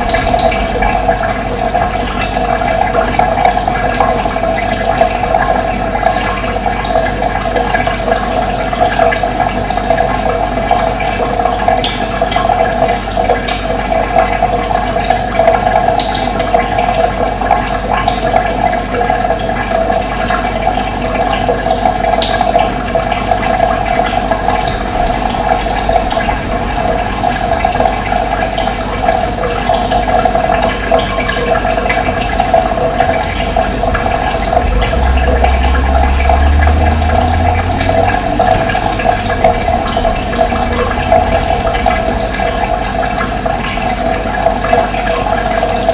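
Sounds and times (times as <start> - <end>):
flowing water rushing: 0.0 - 45.9.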